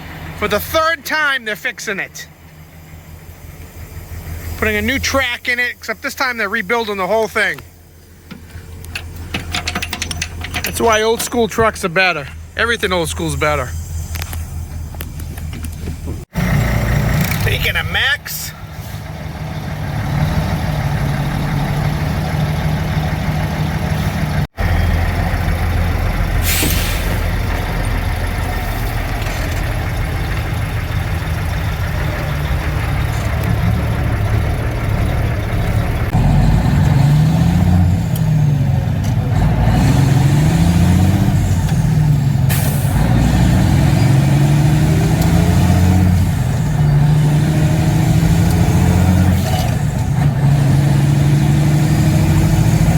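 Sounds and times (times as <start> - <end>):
diesel truck engine shifting gears: 0.0 - 52.9
air brake hisses: 26.4 - 27.4.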